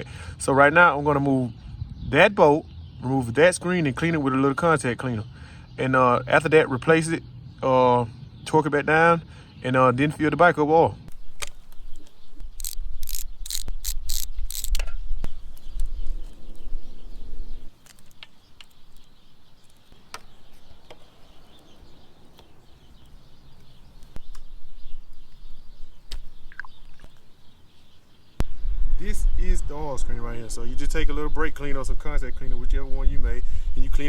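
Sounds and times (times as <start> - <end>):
small clicks of parts handled: 11.4 - 15.0
ratchet wrench clicking: 12.6 - 14.8.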